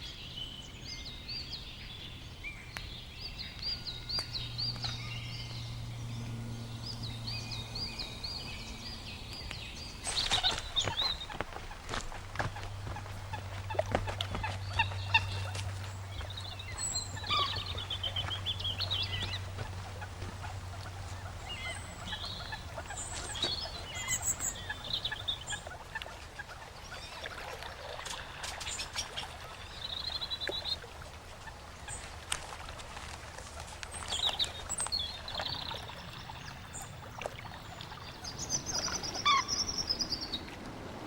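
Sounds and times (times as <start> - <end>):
birds chirping and calling: 0.0 - 27.3, 33.5 - 40.5
low hum: 0.5 - 25.8.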